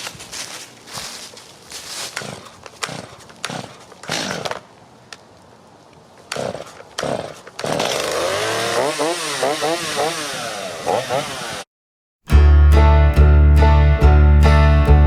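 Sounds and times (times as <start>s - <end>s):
chainsaw engine running: 2.1s - 4.6s, 6.3s - 11.7s
chainsaw starter cord pulls: 2.1s - 4.6s, 6.3s - 11.6s.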